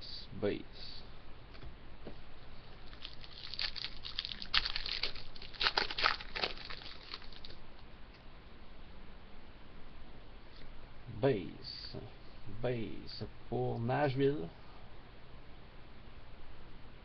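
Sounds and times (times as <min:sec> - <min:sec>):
wrapper crinkling and tearing: 0:02.8 - 0:07.6.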